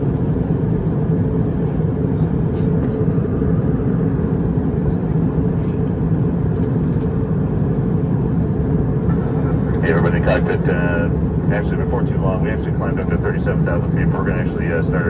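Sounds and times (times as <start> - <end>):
aircraft cabin engine drone: 0.0 - 15.0
low hum: 5.8 - 15.0.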